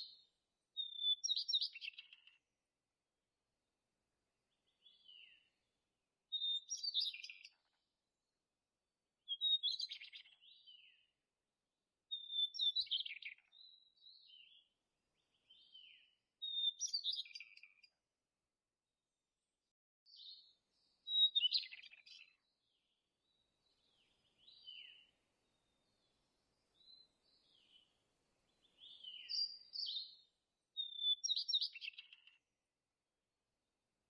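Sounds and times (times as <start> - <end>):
songbird singing: 0.0 - 2.5, 4.5 - 7.8, 9.3 - 11.2, 12.1 - 18.0, 19.4 - 32.5.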